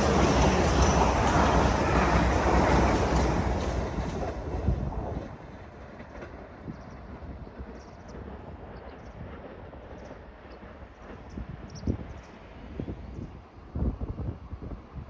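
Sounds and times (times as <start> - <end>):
train rumbling past: 0.0 - 13.6.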